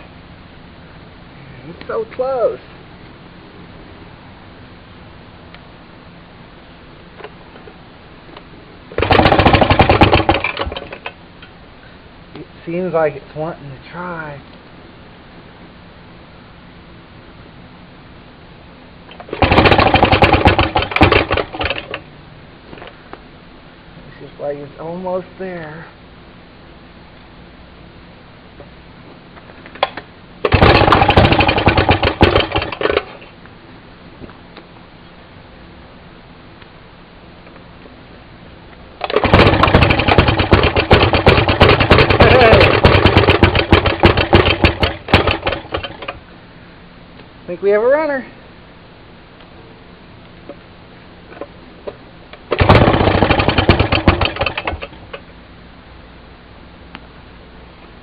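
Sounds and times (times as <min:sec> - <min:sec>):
engine firing in rapid pops: 0:09.0 - 0:11.2, 0:19.1 - 0:22.0, 0:29.7 - 0:33.2, 0:39.0 - 0:46.2, 0:51.4 - 0:55.2.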